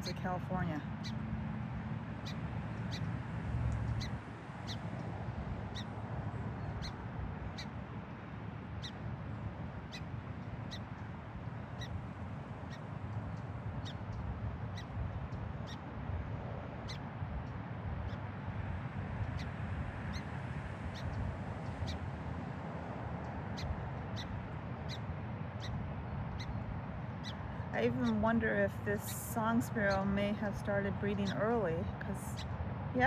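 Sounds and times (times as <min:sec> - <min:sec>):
sparrow alarm calls: 0:00.0 - 0:01.3, 0:02.1 - 0:03.2, 0:03.8 - 0:07.9, 0:08.8 - 0:09.1, 0:09.8 - 0:15.9, 0:16.8 - 0:18.3, 0:19.2 - 0:20.3, 0:20.9 - 0:22.0, 0:23.2 - 0:32.6.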